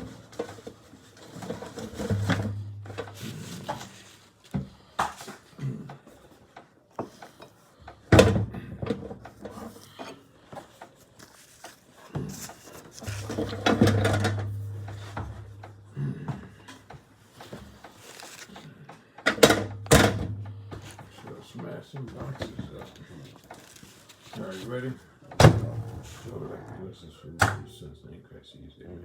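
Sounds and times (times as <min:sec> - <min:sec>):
takeout food containers being handled: 0:00.0 - 0:26.4
low steady hum: 0:02.1 - 0:03.5, 0:13.2 - 0:16.3
containers rubbing and sliding: 0:11.0 - 0:13.6.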